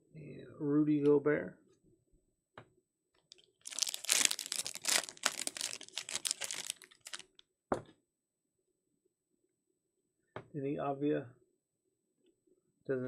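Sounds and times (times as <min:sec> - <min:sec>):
foil wrapper tearing and crinkling: 0:03.6 - 0:07.4.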